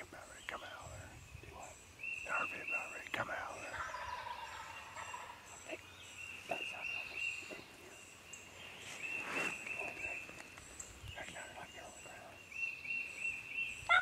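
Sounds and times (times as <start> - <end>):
turkeys gobbling: 3.6 - 5.8.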